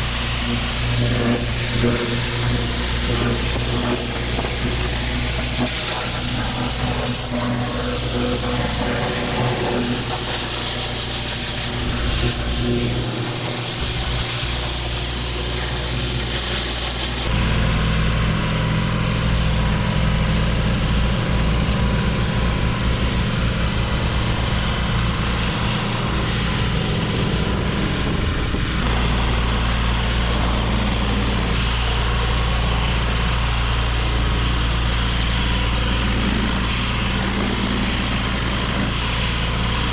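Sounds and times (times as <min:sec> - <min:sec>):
water spraying onto stone paving: 0:00.0 - 0:17.3, 0:28.8 - 0:39.9
pressure washer engine running: 0:00.0 - 0:39.9.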